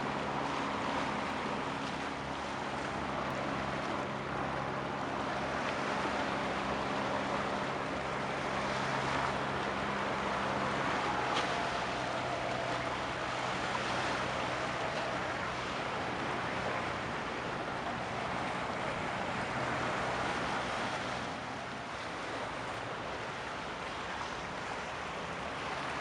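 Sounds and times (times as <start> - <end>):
ship engine hum: 0.0 - 26.0
water noise: 0.0 - 26.0
wind: 0.0 - 26.0.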